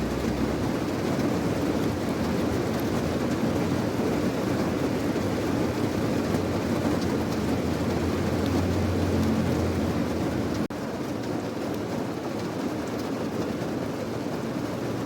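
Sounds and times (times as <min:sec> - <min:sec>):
deep low rumble: 0:00.0 - 0:01.0, 0:07.2 - 0:10.7
steady rain: 0:00.0 - 0:15.0.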